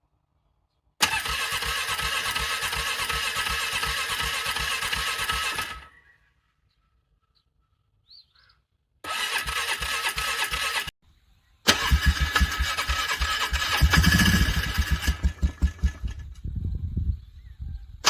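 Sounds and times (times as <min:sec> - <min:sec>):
engine cranking by starter: 0:01.0 - 0:06.0, 0:09.0 - 0:11.0, 0:11.7 - 0:16.5.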